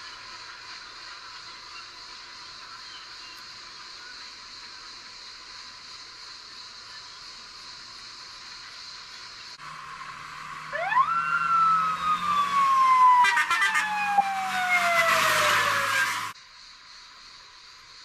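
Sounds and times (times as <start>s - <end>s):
emergency vehicle siren: 9.6s - 16.4s.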